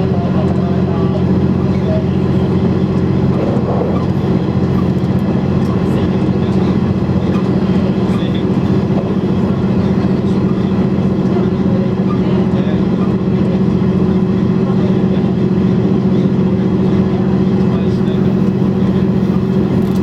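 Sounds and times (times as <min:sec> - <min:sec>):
diesel engine drone: 0:00.0 - 0:20.0
rail running noise: 0:00.0 - 0:20.0.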